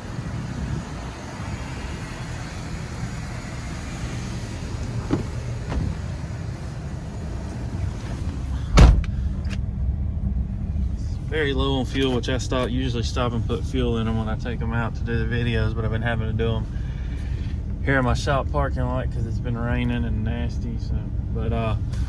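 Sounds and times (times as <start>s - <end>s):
diesel engine idling: 0.0s - 22.0s
truck door shutting: 3.5s - 6.6s, 7.4s - 9.6s.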